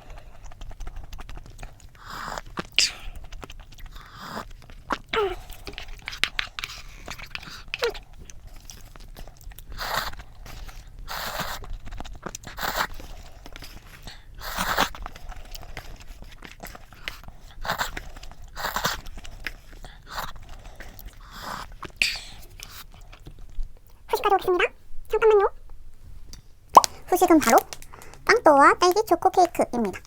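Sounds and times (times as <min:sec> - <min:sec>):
crunchy chewing and biting: 0:00.0 - 0:23.7.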